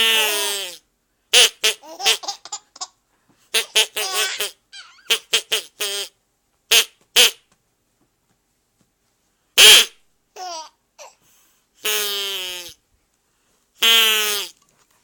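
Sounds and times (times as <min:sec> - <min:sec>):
baby giggling: 0:01.7 - 0:03.0, 0:03.6 - 0:05.8.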